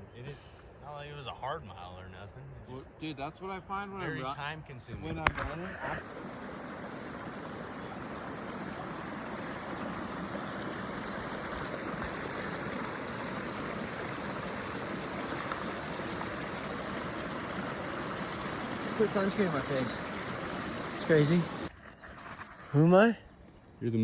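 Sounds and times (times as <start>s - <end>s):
creek water rushing: 6.0s - 21.7s.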